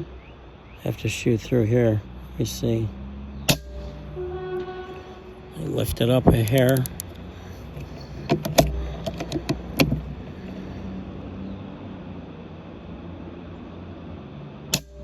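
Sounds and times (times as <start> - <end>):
background hiss: 0.0 - 15.0
handling clicks: 5.8 - 10.1.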